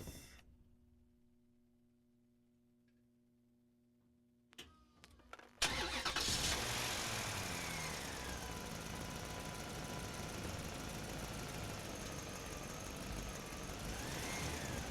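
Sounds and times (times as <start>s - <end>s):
engine starting and running: 5.6s - 11.0s, 11.7s - 14.9s.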